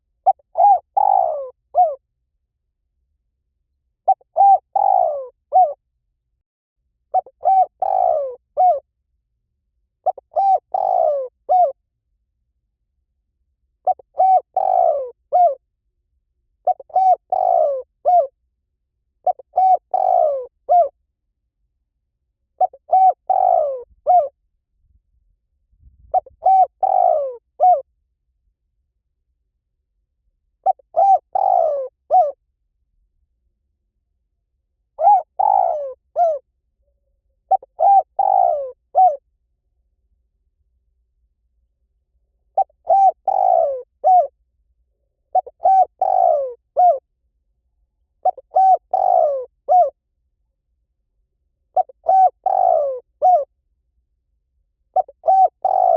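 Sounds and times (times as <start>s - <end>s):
dove cooing: 0.2s - 2.0s, 4.0s - 5.8s, 7.1s - 8.8s, 10.0s - 11.8s, 13.8s - 15.6s, 16.6s - 18.3s, 19.2s - 20.9s, 22.6s - 24.3s, 26.1s - 27.8s, 30.6s - 32.4s, 35.0s - 36.4s, 37.5s - 39.2s, 42.6s - 44.3s, 45.3s - 47.0s, 48.2s - 50.0s, 51.7s - 53.5s, 55.0s - 55.9s.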